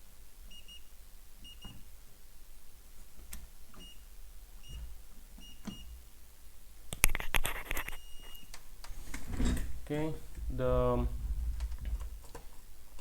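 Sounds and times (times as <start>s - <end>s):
loud rattling clatter: 10.3s - 12.3s.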